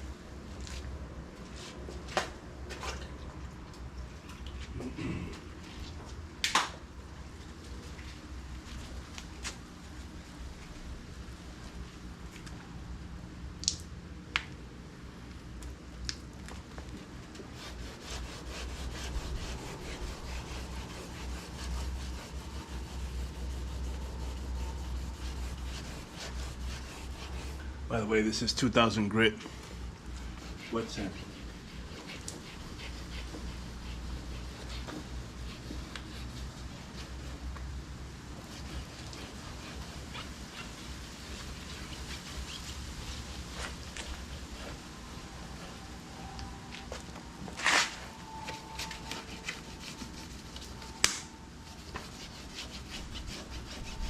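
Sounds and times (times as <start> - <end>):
water dripping: 13.6 - 13.9
wet sanding swishes: 17.5 - 27.6, 30.3 - 37.2, 38.4 - 44.9, 51.8 - 54.0.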